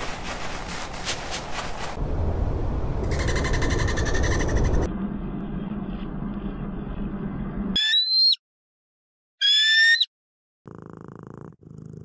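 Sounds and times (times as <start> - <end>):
high-pitched whistle-like animal calls: 7.8 - 8.4, 9.4 - 10.1.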